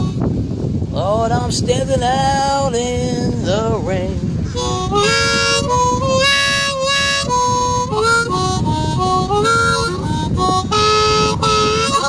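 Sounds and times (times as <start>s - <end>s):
blues harmonica playing: 0.0s - 0.2s, 4.5s - 12.0s.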